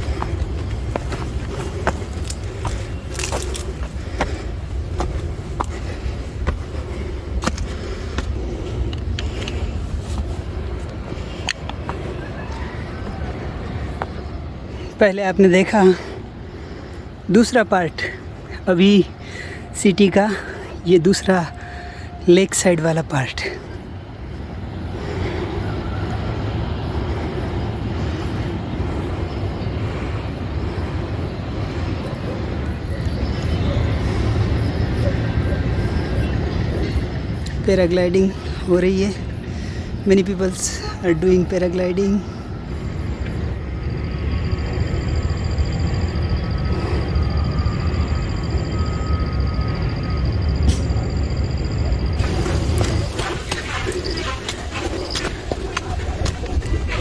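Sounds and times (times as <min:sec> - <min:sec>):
steady low rumble: 0:00.0 - 0:12.1
footsteps on forest track: 0:00.0 - 0:14.2, 0:52.2 - 0:57.0
wind buffeting microphone: 0:52.1 - 0:57.0.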